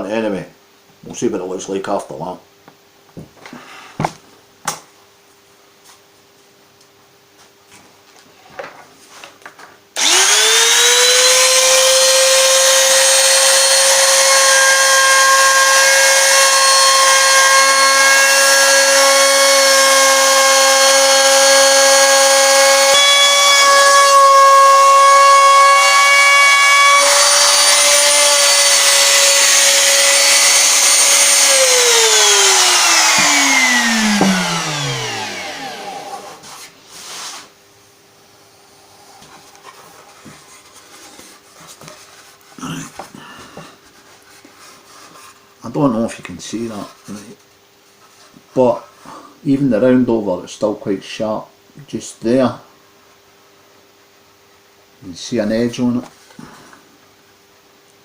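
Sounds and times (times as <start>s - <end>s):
wood router high whine: 10.0s - 36.7s.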